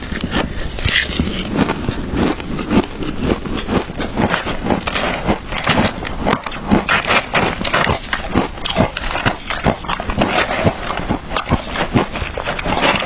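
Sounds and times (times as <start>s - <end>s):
chewing shaved ice crunches: 0.0s - 13.0s.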